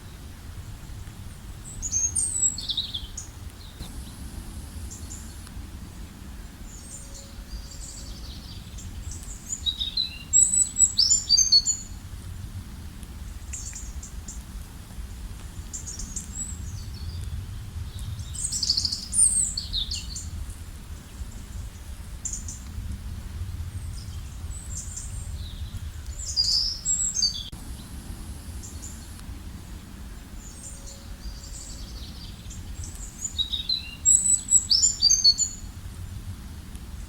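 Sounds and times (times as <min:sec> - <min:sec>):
low rumble: 0:03.5 - 0:09.5, 0:12.0 - 0:33.3
birds chirping and singing: 0:06.5 - 0:12.0, 0:23.8 - 0:27.9, 0:28.6 - 0:35.7.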